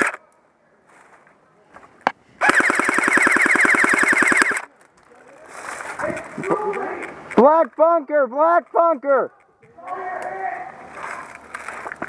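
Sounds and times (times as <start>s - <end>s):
airsoft rifle full-auto burst: 2.4s - 4.7s.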